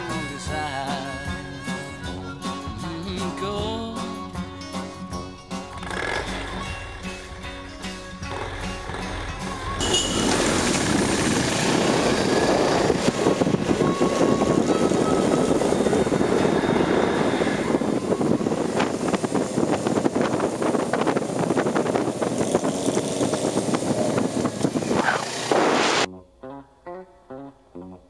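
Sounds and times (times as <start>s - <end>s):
motorcycle engine drone: 5.7s - 26.1s
wind rush over microphone: 10.2s - 26.1s.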